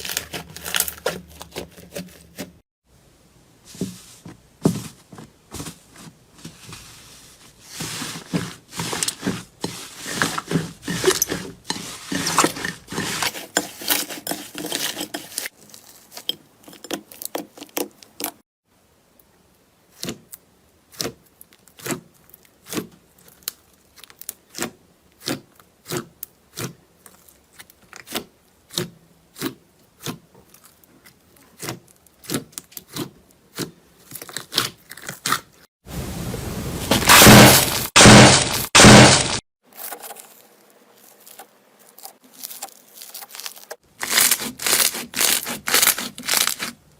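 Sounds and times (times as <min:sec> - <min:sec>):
crackling of handled material: 0:00.0 - 0:02.6, 0:03.7 - 0:18.4, 0:36.9 - 0:46.9.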